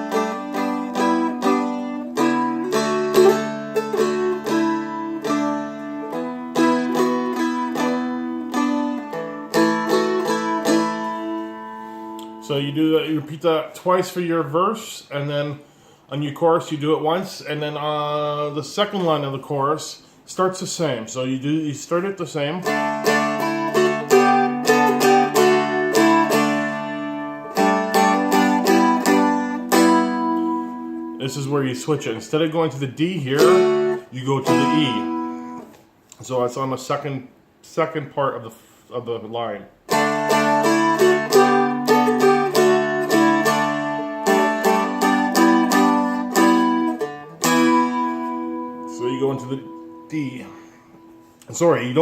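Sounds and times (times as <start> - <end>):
picked fretted string melody: 0.0 - 13.4, 22.6 - 32.2, 33.0 - 35.8, 39.9 - 51.5.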